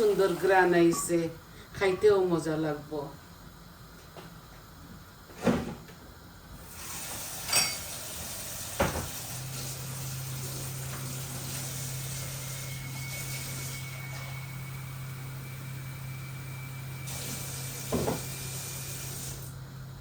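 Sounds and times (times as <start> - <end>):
hiss: 6.6 - 13.8, 17.0 - 19.6.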